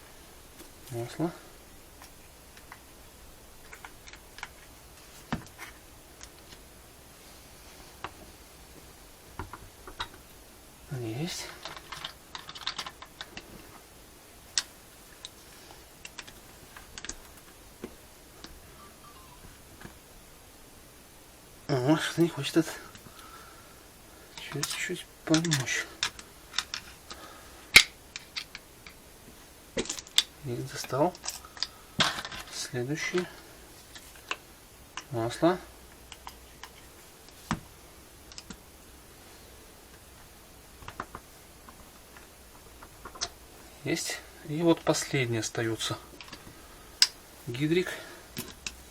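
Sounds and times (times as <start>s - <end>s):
small metal parts clicking: 3.6s - 4.7s, 11.5s - 13.5s, 16.0s - 17.4s, 24.3s - 29.0s, 29.8s - 35.1s, 35.9s - 37.4s.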